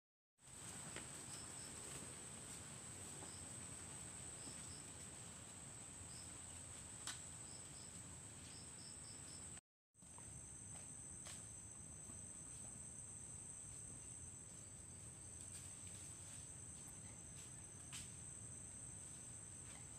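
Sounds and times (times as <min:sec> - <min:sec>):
insect chirps: 0:00.5 - 0:19.9
insects trilling drone: 0:00.7 - 0:19.9.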